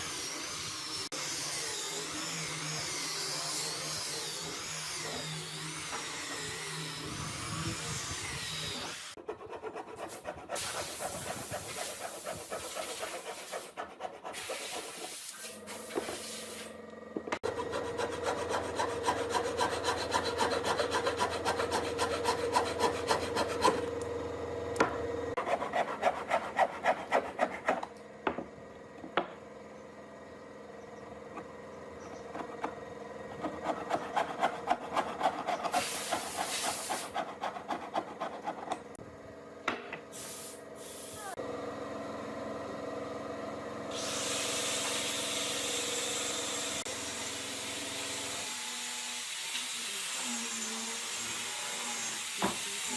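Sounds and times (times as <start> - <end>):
rasp filing wood: 3.0 - 16.6, 17.4 - 23.9, 25.4 - 27.9, 32.4 - 39.0.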